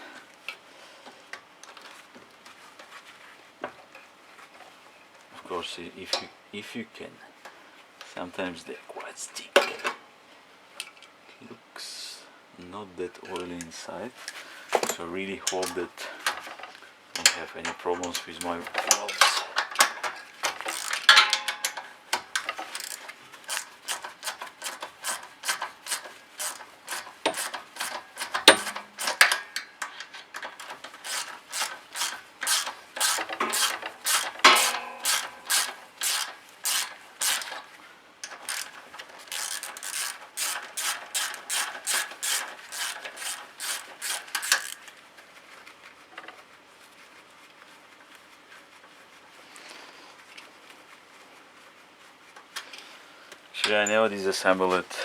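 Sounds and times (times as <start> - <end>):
socket ratchet clicking: 19.3 - 21.8, 22.4 - 29.7, 30.5 - 37.6, 38.2 - 44.8.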